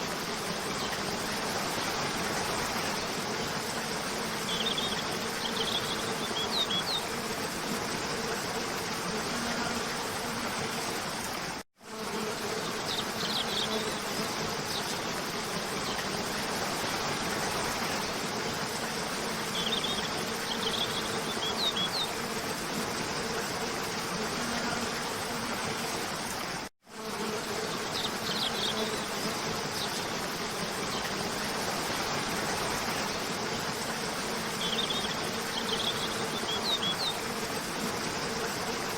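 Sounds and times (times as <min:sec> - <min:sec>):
songbirds chirping: 0:02.0 - 0:07.2, 0:12.4 - 0:15.1, 0:19.4 - 0:22.2, 0:27.5 - 0:31.4, 0:34.4 - 0:37.3.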